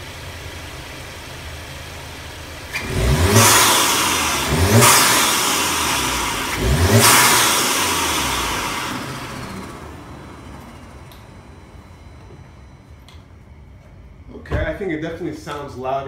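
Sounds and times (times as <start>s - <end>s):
car engine revving: 2.3s - 12.8s.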